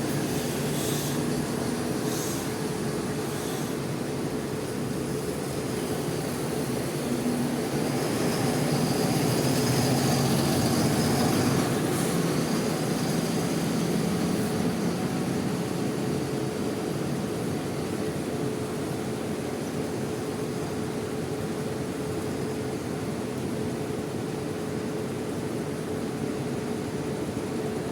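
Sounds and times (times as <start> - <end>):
steady hiss: 0.0 - 7.0
diesel bus engine passing: 0.0 - 19.2.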